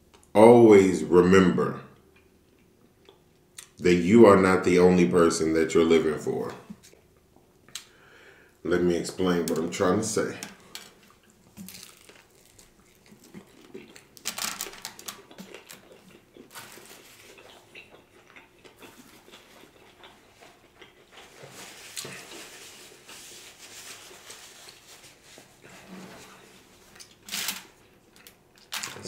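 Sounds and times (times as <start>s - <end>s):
wet chewing: 10.6s - 23.2s
paper napkin rustling: 21.2s - 27.8s.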